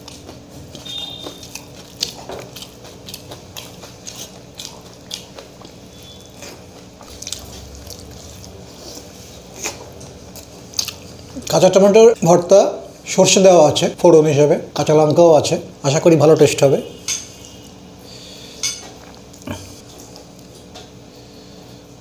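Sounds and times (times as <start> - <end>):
moist chewing with mouth clicks: 0.0 - 11.6, 19.0 - 20.9.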